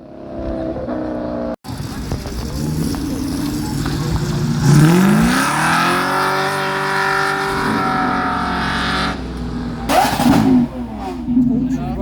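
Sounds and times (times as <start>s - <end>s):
car engine revving: 0.4s - 12.0s.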